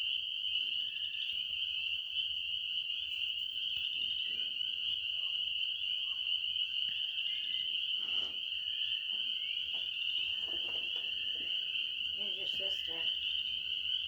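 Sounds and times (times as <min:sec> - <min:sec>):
frogs or insects trilling: 0:00.0 - 0:14.0
soft rustle: 0:10.2 - 0:11.6.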